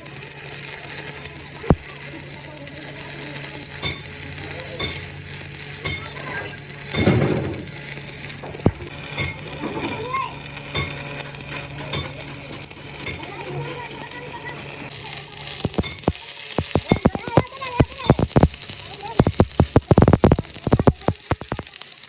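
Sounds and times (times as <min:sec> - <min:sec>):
electric arc welding crackling: 0:00.0 - 0:22.0
clattering burst: 0:03.7 - 0:14.7, 0:15.6 - 0:21.8.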